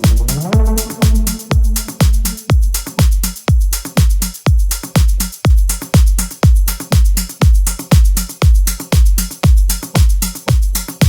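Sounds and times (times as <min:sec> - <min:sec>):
melodic techno music: 0:00.0 - 0:03.8.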